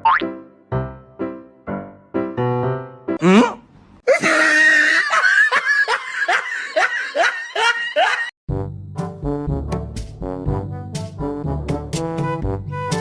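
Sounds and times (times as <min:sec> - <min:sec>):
music: 0:00.0 - 0:03.2, 0:08.5 - 0:13.0
loud laughter: 0:04.1 - 0:08.3.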